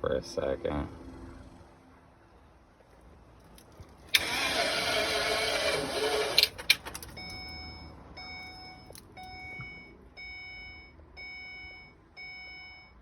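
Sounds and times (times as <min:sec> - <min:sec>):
starter clicks: 0:03.5 - 0:07.2
starter motor cranking engine: 0:04.1 - 0:07.2
dashboard warning chime beeping: 0:07.1 - 0:13.0.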